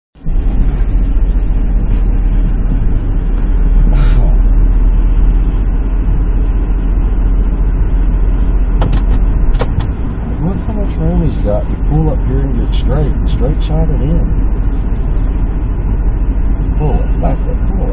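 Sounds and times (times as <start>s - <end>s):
diesel engine idling: 0.2s - 17.9s
sharp clicks: 8.8s - 10.2s.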